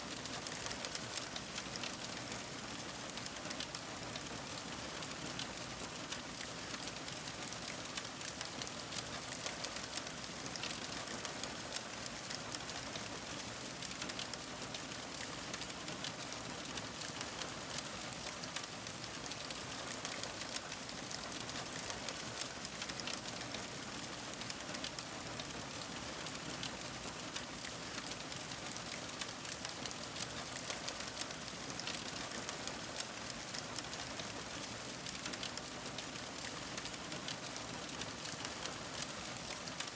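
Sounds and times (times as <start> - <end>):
fire crackling: 35.3 - 35.5.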